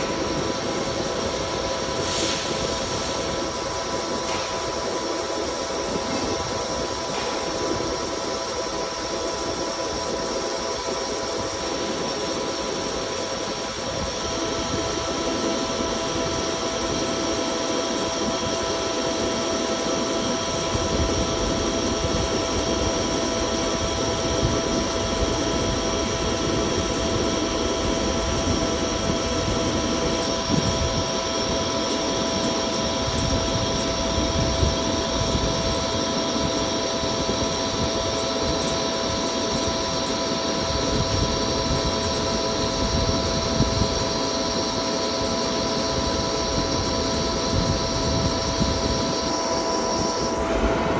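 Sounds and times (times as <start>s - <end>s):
hiss: 0.0s - 8.2s
lathe machine whine: 0.0s - 50.9s.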